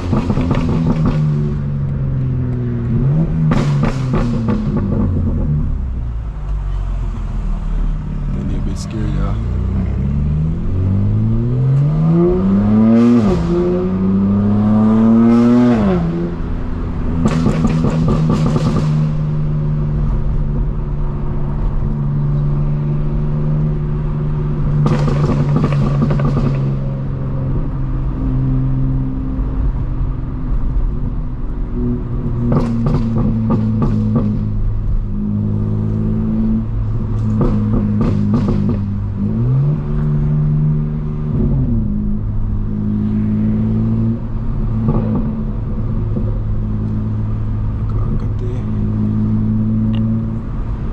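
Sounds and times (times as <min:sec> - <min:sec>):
exhaust crackles and pops: 0:00.0 - 0:01.3, 0:17.2 - 0:19.2, 0:24.7 - 0:26.8, 0:37.1 - 0:39.0
car engine accelerating hard: 0:00.0 - 0:50.9.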